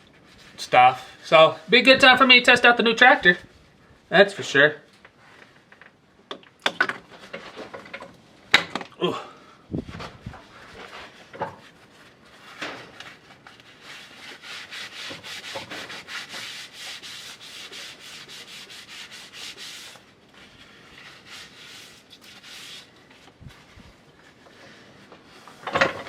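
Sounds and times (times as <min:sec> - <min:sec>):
rapid rubbing strokes: 0:10.5 - 0:25.6.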